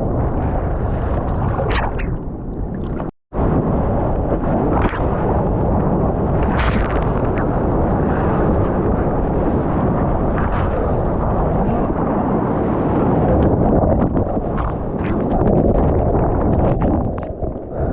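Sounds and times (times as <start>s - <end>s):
wind buffeting microphone: 0.0s - 17.9s
water splashes: 1.2s - 3.1s.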